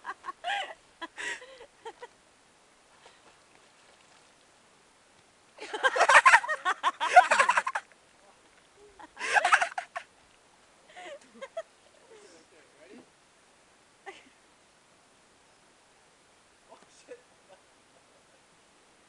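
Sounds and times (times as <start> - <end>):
woman laughing hard: 0.0 - 2.1, 5.6 - 7.8, 9.0 - 10.1.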